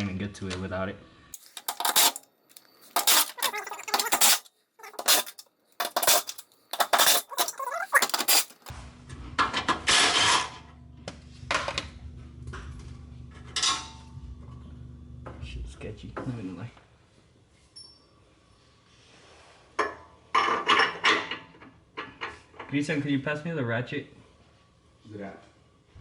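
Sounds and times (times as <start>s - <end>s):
metallic clinks of tools and bolts: 1.4s - 8.7s.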